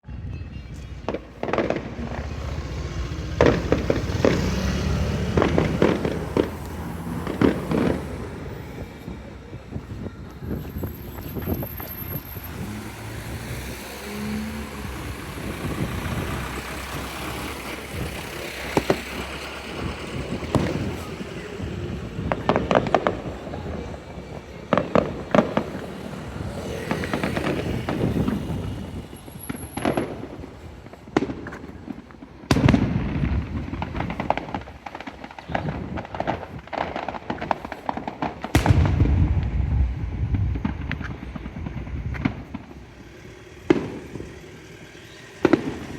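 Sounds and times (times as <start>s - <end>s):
fireworks bangs and crackling: 0.0s - 45.9s
low fireworks booms: 0.0s - 45.9s.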